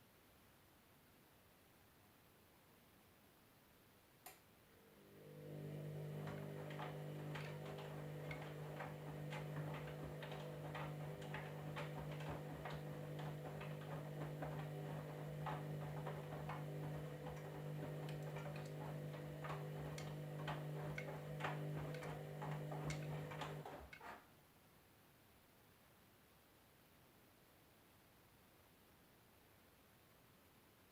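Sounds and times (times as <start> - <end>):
washing machine hum: 4.8 - 24.2.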